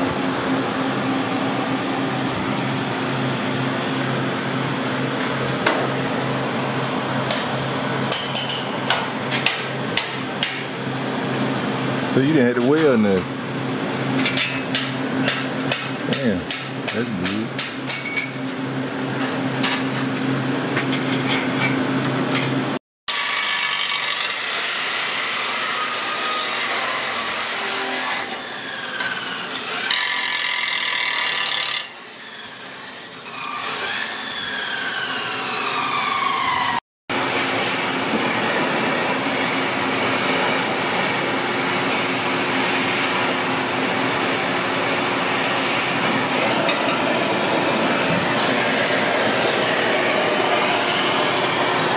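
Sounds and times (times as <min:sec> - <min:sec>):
power tool cutting metal: 0:23.1 - 0:51.9.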